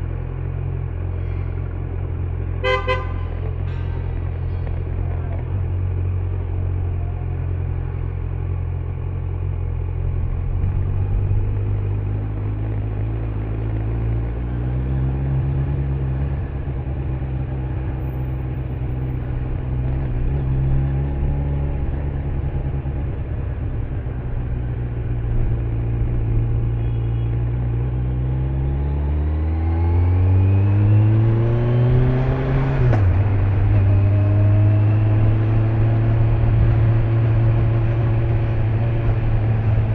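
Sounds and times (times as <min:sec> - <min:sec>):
motorcycle engine running: 0:00.0 - 0:13.7.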